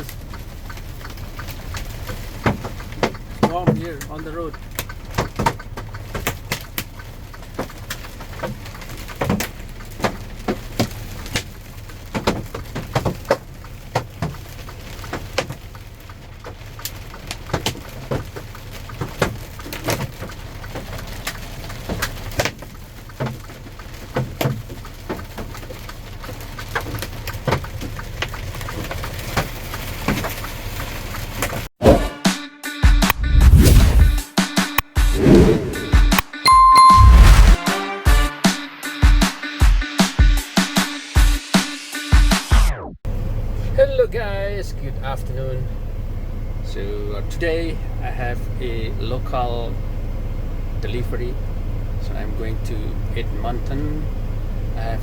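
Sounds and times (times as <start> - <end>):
hail striking windshield: 0.0 - 31.7
low rumble: 33.1 - 34.2, 35.2 - 37.6.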